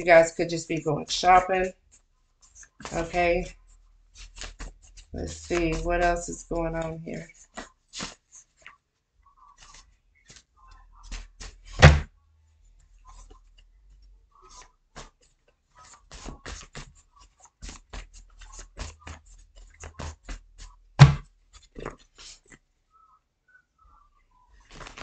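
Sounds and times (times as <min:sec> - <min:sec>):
cards being shuffled: 0:01.2 - 0:08.8, 0:09.5 - 0:12.0, 0:14.4 - 0:22.6, 0:24.6 - 0:25.0
thumps: 0:11.1 - 0:12.1, 0:21.0 - 0:22.0.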